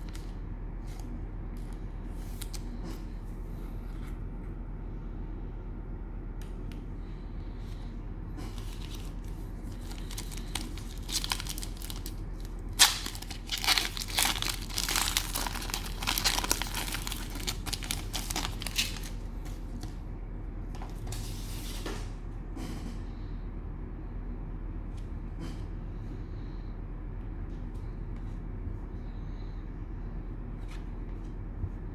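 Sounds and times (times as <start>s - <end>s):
cellophane wrapper crinkling: 8.5s - 19.3s.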